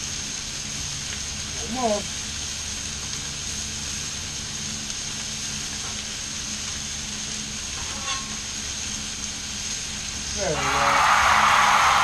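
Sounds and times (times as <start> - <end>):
constant low hum: 0.0 - 10.6
fish and chicken sizzling on griddle: 0.0 - 12.0.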